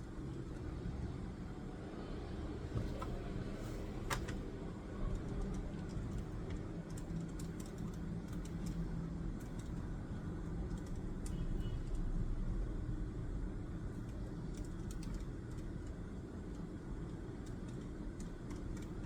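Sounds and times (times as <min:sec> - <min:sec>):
desk clicks and taps: 0:02.7 - 0:03.2, 0:04.0 - 0:04.4.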